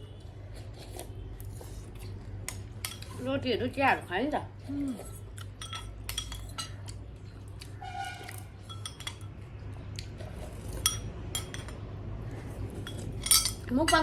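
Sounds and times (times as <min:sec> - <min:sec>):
cutlery clinking on dishes: 0:04.9 - 0:07.0, 0:08.2 - 0:09.4, 0:10.6 - 0:11.9, 0:12.8 - 0:14.0.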